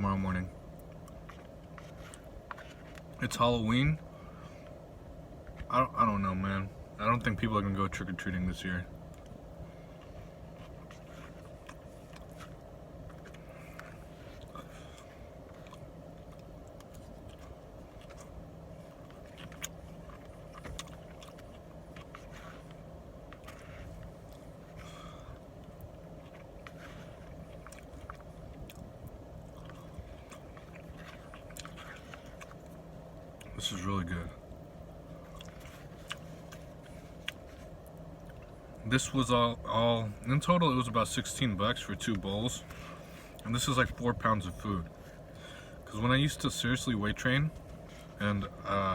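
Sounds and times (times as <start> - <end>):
low hum: 0.0 - 48.9
person chewing: 0.8 - 3.2, 9.0 - 33.6, 34.8 - 38.8.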